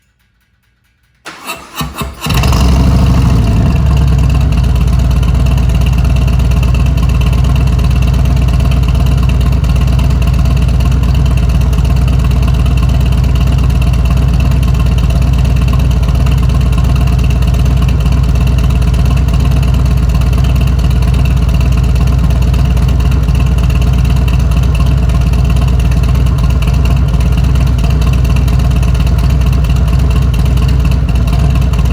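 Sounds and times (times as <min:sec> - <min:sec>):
motorcycle starter cranking: 0:00.0 - 0:11.6
motorcycle engine idling: 0:00.0 - 0:31.9.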